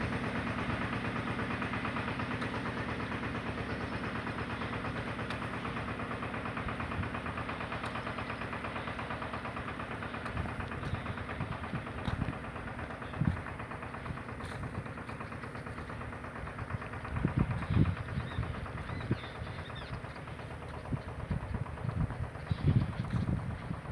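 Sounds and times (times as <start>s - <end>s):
diesel engine puttering: 0.0s - 23.9s.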